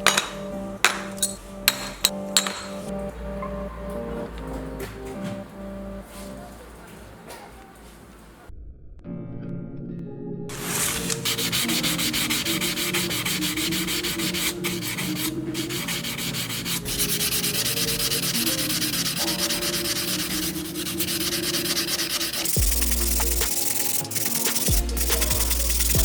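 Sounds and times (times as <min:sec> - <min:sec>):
sanding scraping: 0:10.6 - 0:26.0.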